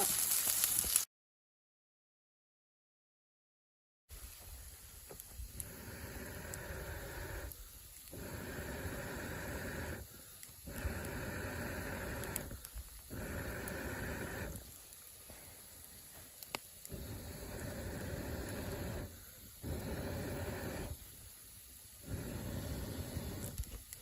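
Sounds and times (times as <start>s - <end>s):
person blowing air: 5.4s - 14.8s, 16.9s - 21.1s, 22.0s - 23.8s.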